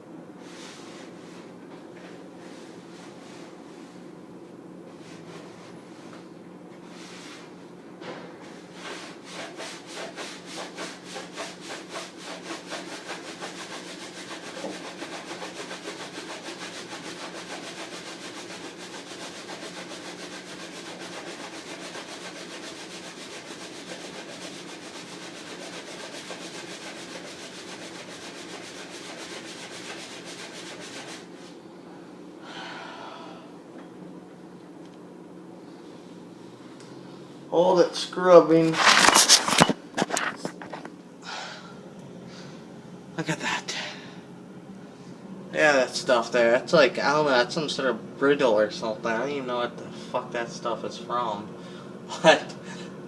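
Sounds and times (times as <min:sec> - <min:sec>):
sponge scrubbing: 0:08.6 - 0:31.6.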